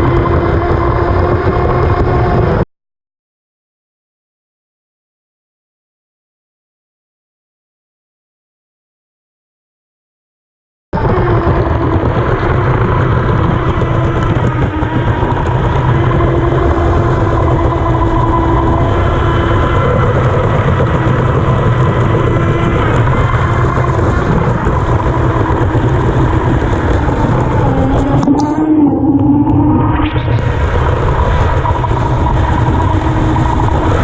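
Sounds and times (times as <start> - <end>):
electric motor whine: 0.0 - 2.6, 11.0 - 34.0
rumble of hull and water: 0.0 - 2.7, 11.0 - 34.0.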